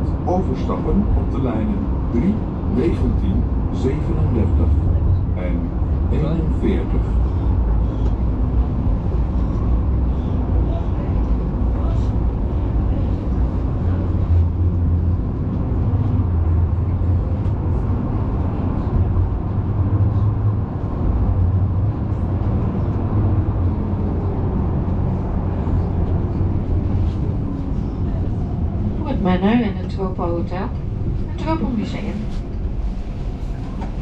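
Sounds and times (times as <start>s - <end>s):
tram rumbling on rails: 0.0s - 34.0s.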